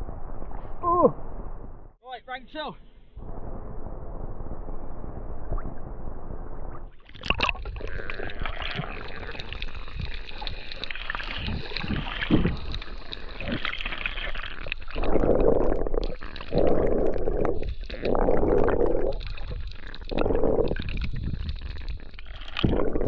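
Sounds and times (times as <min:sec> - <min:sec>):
water splashing and sloshing: 0:06.6 - 0:23.0.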